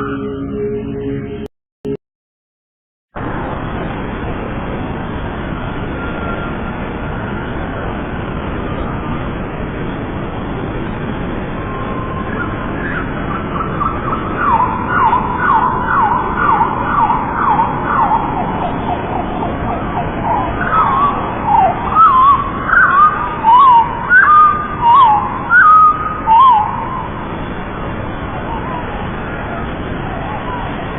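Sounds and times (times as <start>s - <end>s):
steady background hiss: 3.2s - 30.9s
whistling bird calls: 11.6s - 19.1s, 20.2s - 27.2s
lovebirds chirping: 19.6s - 27.2s.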